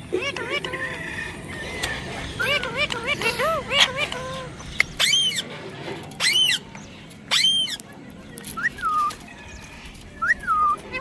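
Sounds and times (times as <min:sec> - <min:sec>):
parrot squawking: 0:00.0 - 0:07.9
parrot whistling: 0:00.1 - 0:07.8, 0:08.6 - 0:11.0.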